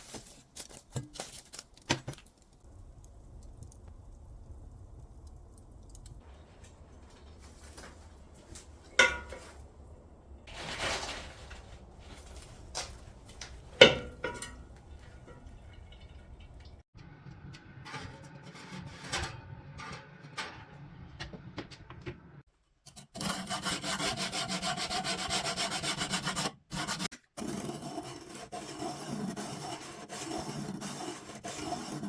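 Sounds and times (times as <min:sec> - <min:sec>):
low steady hum: 0:02.6 - 0:17.6
sanding or filing rubbing: 0:23.2 - 0:32.0.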